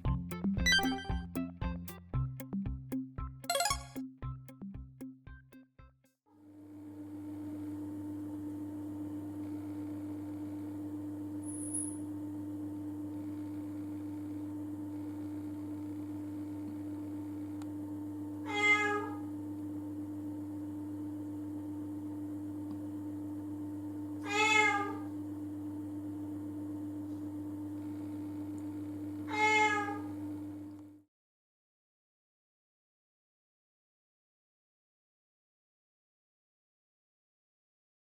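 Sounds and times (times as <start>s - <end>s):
cat meowing: 18.5s - 19.2s, 24.2s - 25.1s, 29.3s - 30.1s.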